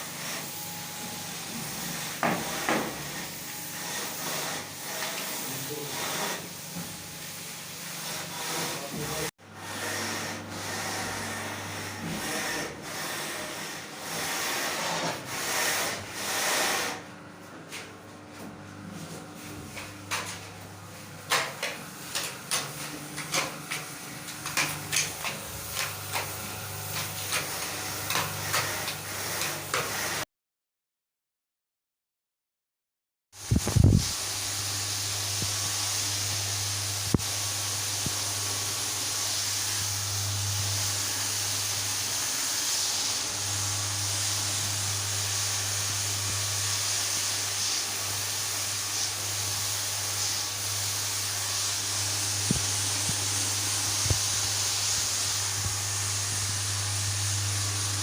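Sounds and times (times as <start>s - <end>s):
sharp knocks and scrapes: 1.5s - 3.3s, 21.3s - 29.9s.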